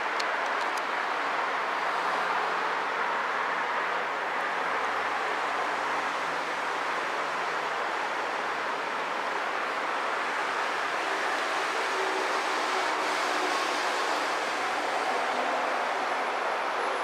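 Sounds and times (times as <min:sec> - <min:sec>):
electric train rushing: 0:10.2 - 0:16.8.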